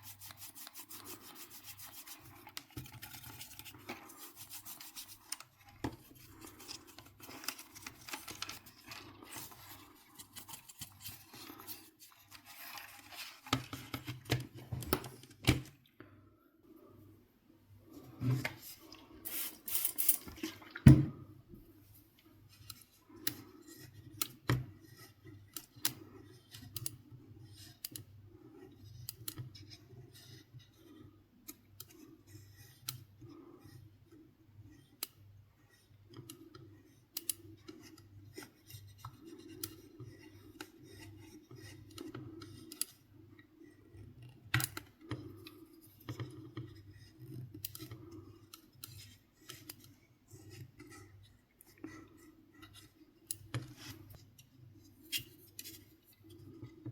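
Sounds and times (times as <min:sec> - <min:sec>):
clicks taps and scrapes: 0:00.0 - 0:16.2, 0:34.8 - 0:56.9.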